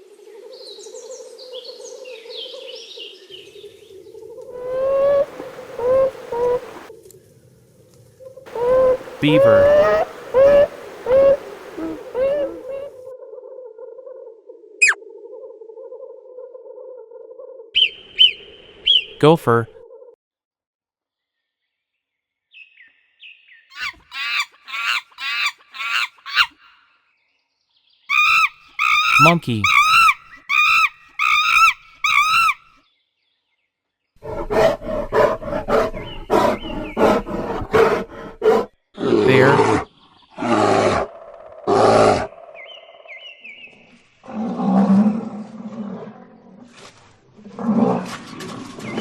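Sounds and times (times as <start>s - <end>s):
gopher squeaky calls: 23.7s - 26.7s, 28.1s - 32.6s
bear growling low: 34.2s - 42.4s, 44.2s - 46.8s
bear roaring: 34.2s - 42.4s, 44.2s - 46.7s.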